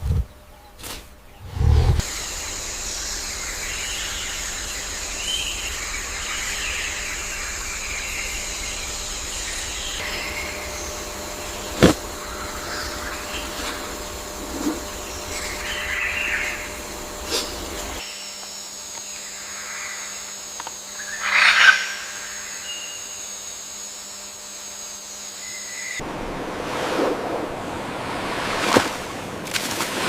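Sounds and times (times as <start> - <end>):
steady hum: 0.0 - 30.0
bird chirps: 2.1 - 13.6.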